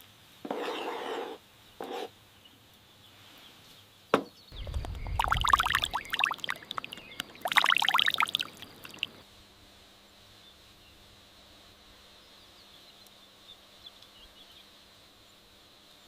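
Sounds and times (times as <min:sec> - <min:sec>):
something being poured: 0:04.7 - 0:09.2.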